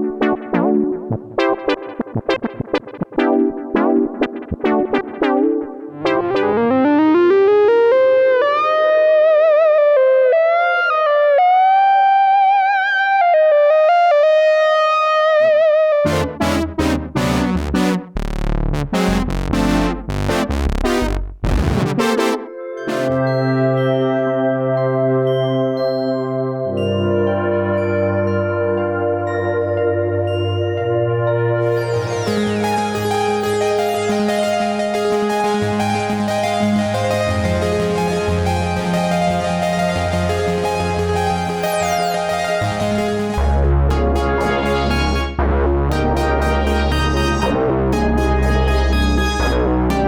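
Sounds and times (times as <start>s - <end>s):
synthesizer lead with vibrato: 0.0s - 11.4s, 15.4s - 25.2s, 31.2s - 50.0s
synthesizer plucked notes: 0.0s - 25.3s, 26.6s - 50.0s
punchy bass-heavy synth stabs: 16.1s - 23.2s, 31.7s - 50.0s.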